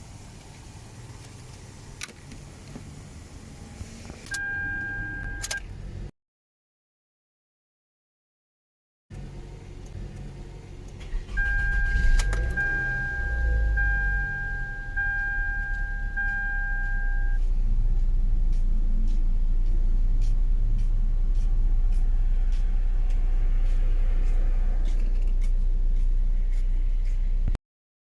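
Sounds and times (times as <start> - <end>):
car warning chime beeping: 4.3 - 5.6, 11.0 - 17.4
car engine idling: 9.1 - 27.6.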